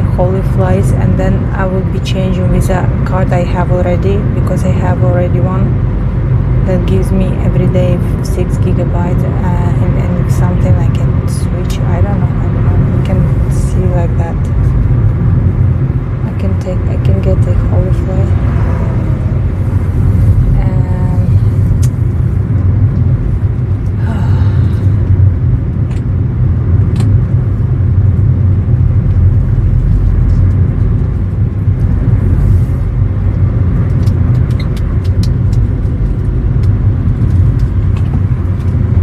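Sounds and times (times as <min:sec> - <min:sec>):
vehicle engine and road noise: 0:00.0 - 0:39.0.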